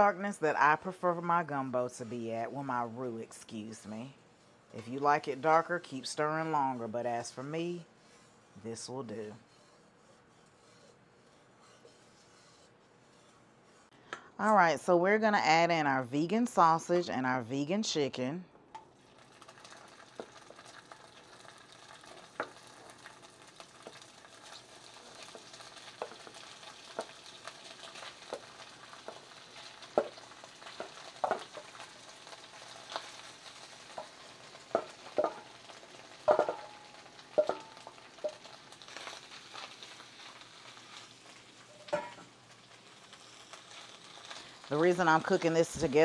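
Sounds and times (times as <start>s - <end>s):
sausage sizzling in a skillet: 18.9s - 46.0s.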